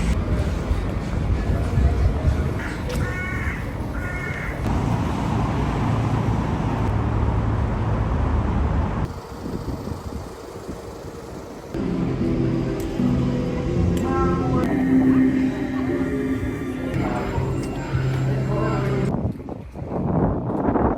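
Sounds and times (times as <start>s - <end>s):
low rumble of traffic: 0.0s - 20.9s
crow cawing: 2.6s - 4.7s.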